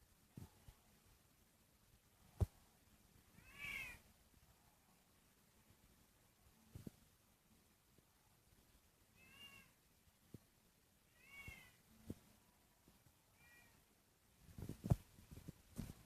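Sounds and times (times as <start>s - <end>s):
cat meowing faintly: 3.3s - 4.1s, 9.2s - 9.8s, 11.1s - 11.9s, 13.3s - 13.9s.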